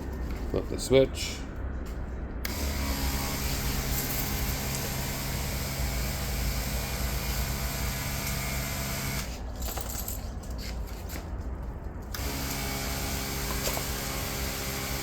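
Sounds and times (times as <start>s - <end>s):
electric pump humming: 2.4s - 9.4s, 12.1s - 15.0s.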